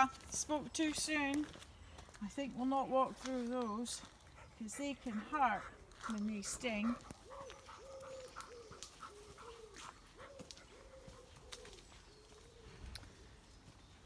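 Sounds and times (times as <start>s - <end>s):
pigeon cooing: 7.2s - 13.2s
twigs snapping underfoot: 11.4s - 13.1s.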